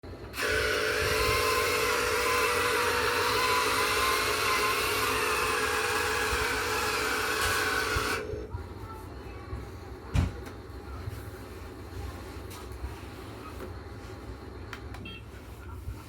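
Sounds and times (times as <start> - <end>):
electric motors whirring: 0.2 - 8.5.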